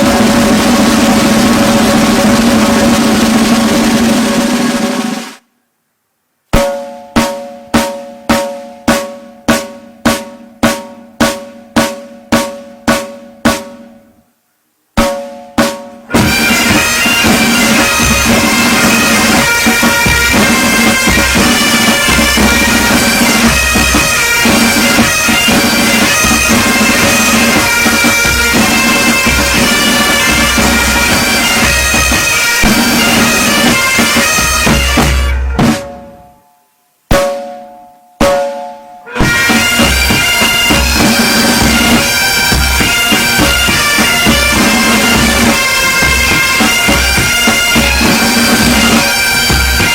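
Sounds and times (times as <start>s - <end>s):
drum beats ringing out: 0.0s - 5.4s, 6.5s - 14.2s, 15.0s - 49.9s
snare and bass drums: 0.0s - 5.4s, 6.6s - 14.0s, 15.0s - 36.3s, 37.1s - 37.6s, 38.2s - 49.9s
bagpipes droning: 16.1s - 35.7s, 39.1s - 49.9s.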